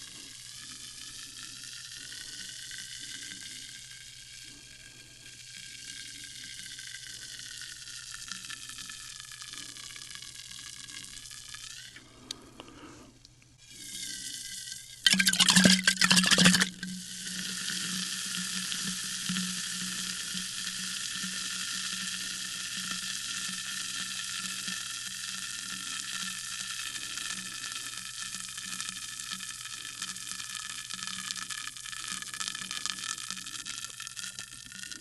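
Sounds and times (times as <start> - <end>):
sparkling water fizzing: 14.2 - 35.0.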